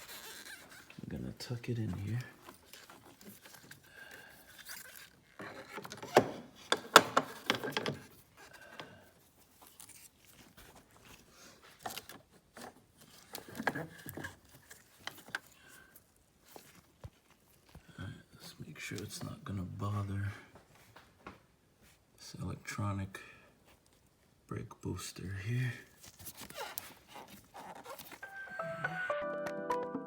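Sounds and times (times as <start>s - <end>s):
plastic and wire rustling: 0.0s - 19.5s, 25.8s - 28.4s.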